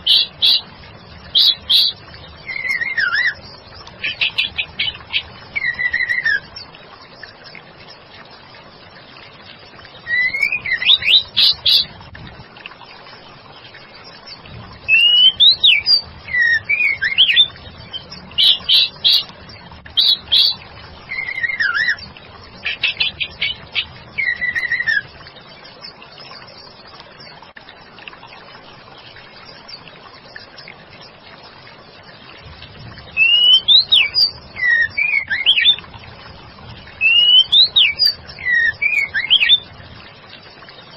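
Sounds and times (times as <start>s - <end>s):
faint steady hiss: 0.0s - 40.9s
bird singing gliding whistles: 1.3s - 6.6s, 10.0s - 11.9s, 14.9s - 19.3s, 20.0s - 22.0s, 22.6s - 25.1s, 33.2s - 35.8s, 37.0s - 39.6s.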